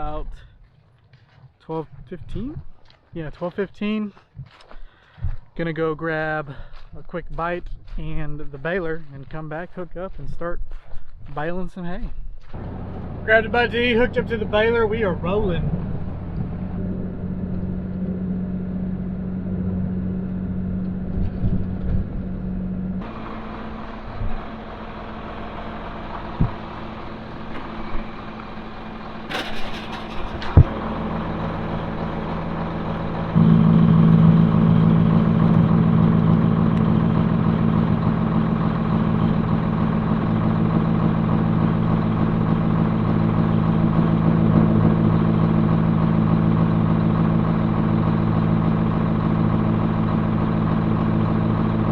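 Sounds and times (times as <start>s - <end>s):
tractor engine running: 12.5s - 51.9s.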